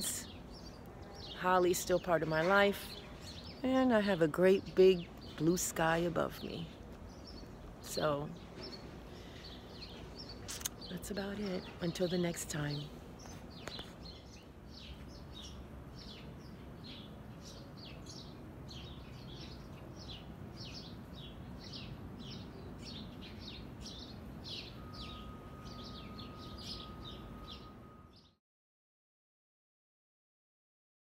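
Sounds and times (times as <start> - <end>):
small birds chirping: 0.0 - 28.4
faint steady tone: 24.1 - 28.4.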